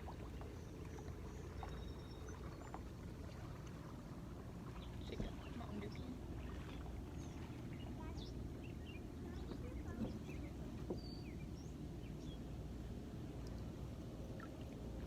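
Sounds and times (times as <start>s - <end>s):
water lapping around a kayak: 0.0s - 15.0s
water drips: 13.3s - 15.0s.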